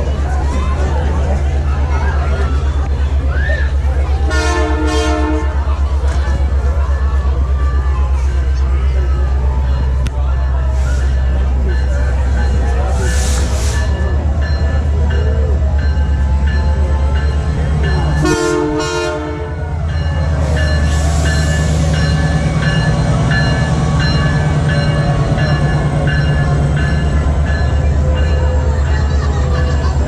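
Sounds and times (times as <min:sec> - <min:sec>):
diesel locomotive drone: 0:00.0 - 0:30.0
train horn blast: 0:04.3 - 0:05.6, 0:18.2 - 0:19.7
locomotive bell ringing: 0:06.5 - 0:30.0.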